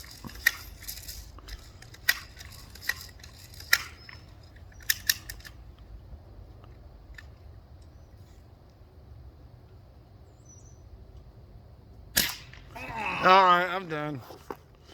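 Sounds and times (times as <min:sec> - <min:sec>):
bb gun shots snapping: 0:12.1 - 0:12.7.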